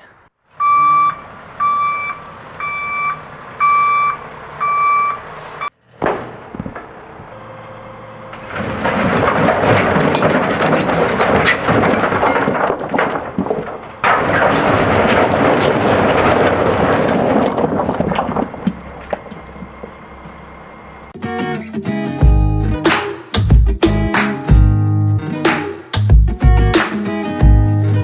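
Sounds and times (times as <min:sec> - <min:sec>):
backup alarm beeping: 0:00.6 - 0:05.7, 0:06.9 - 0:08.7, 0:18.0 - 0:21.2
excavator engine running: 0:00.6 - 0:28.0.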